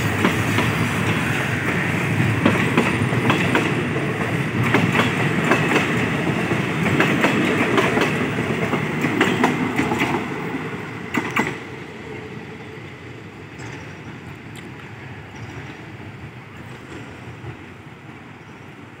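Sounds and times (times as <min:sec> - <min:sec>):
train coaches rolling past: 0:00.0 - 0:19.0
wheel clacks over rail joints: 0:02.4 - 0:10.3.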